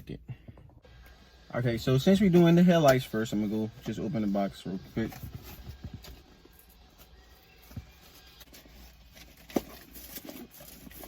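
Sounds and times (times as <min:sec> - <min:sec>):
cardboard box handling: 0:05.0 - 0:11.0.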